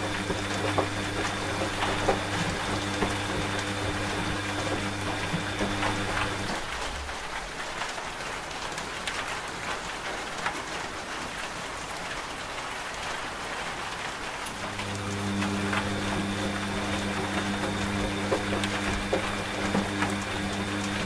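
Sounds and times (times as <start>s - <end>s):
washing machine humming: 0.0s - 8.2s, 14.3s - 21.0s
rain falling on a surface: 4.4s - 21.0s.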